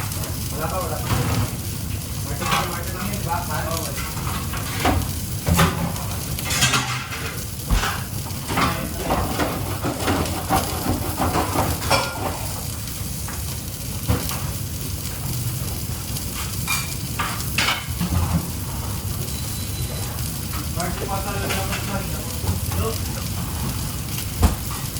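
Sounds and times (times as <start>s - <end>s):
food sizzling in hot oil: 0.0s - 24.9s
utensils clinking on pans: 2.3s - 13.4s, 16.3s - 23.8s.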